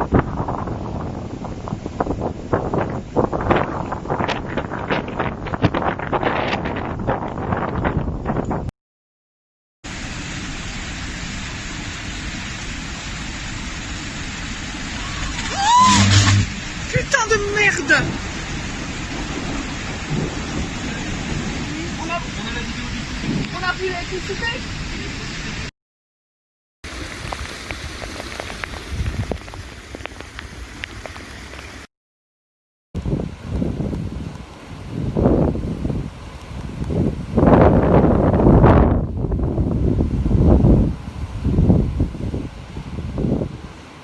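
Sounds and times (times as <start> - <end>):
heavy rain pouring: 9.9 - 25.7, 26.9 - 31.9, 33.0 - 44.0
low rumble: 15.0 - 17.2.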